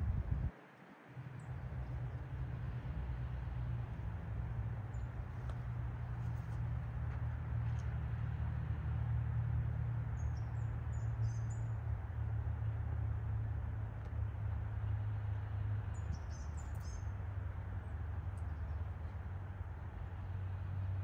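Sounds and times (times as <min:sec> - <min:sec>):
small birds chirping: 0:15.9 - 0:17.2.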